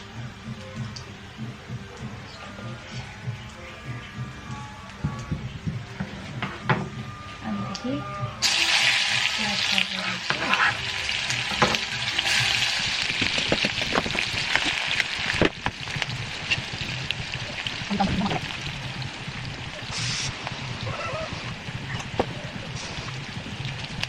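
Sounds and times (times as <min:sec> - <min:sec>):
potatoes sizzling in hot oil: 0:08.4 - 0:24.0.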